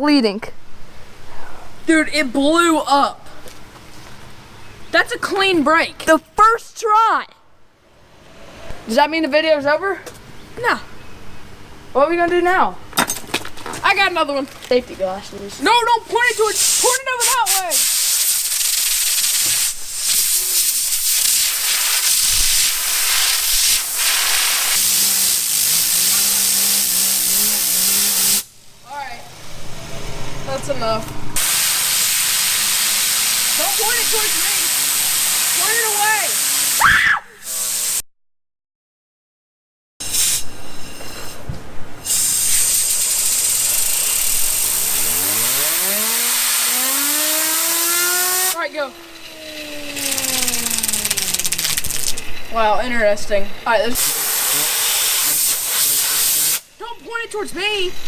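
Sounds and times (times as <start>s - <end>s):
compressed air blow gun hissing: 16.4s - 28.7s, 31.4s - 36.8s, 37.4s - 38.0s, 40.0s - 40.5s, 42.0s - 52.3s, 54.0s - 56.7s
fidget spinner whine: 22.2s - 28.5s, 42.0s - 54.0s
steady low hum: 42.8s - 54.0s.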